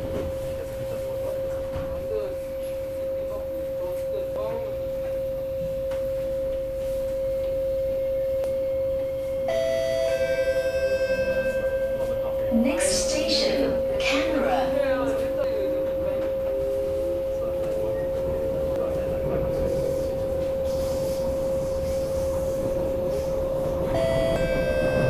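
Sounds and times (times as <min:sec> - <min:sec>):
low train rumble: 0:00.0 - 0:25.0
train electrical whine: 0:00.0 - 0:25.0.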